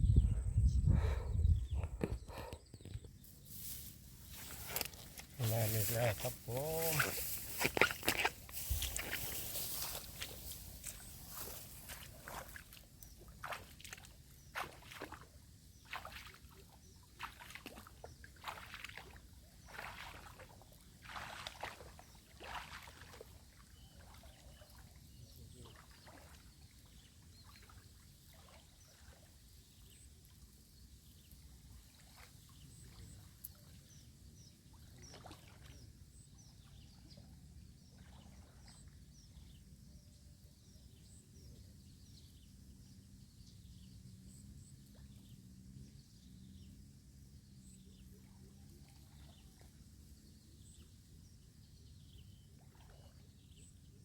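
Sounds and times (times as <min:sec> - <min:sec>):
water sloshing and splashing: 0:03.6 - 0:25.0, 0:34.8 - 0:35.9.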